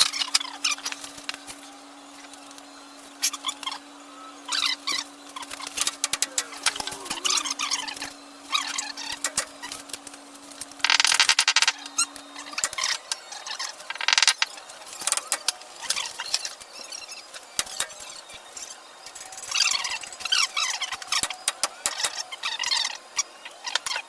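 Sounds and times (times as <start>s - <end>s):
tools clinking on metal: 5.5s - 8.1s, 9.0s - 9.9s, 12.5s - 13.0s, 13.9s - 16.6s, 17.6s - 18.2s, 21.0s - 22.2s
rattling power tool: 5.5s - 9.9s, 15.0s - 15.6s, 17.6s - 18.1s.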